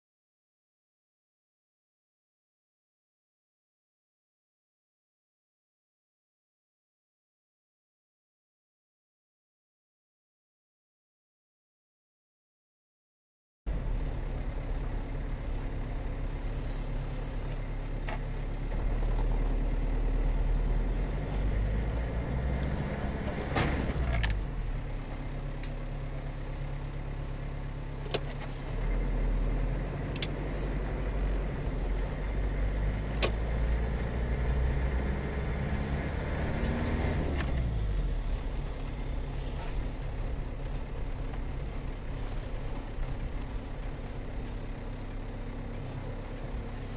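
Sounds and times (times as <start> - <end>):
car engine and road rumble: 13.7 - 46.9.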